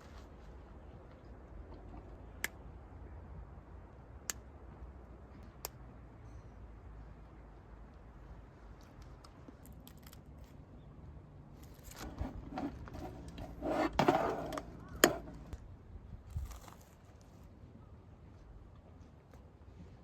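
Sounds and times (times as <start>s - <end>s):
rustling and knocking of handling: 11.9s - 15.6s.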